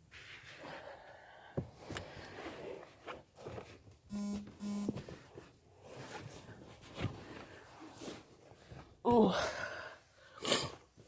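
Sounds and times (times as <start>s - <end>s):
soft rustling: 1.7s - 4.1s, 4.7s - 9.0s
buzzy electronic beeps: 4.1s - 5.0s.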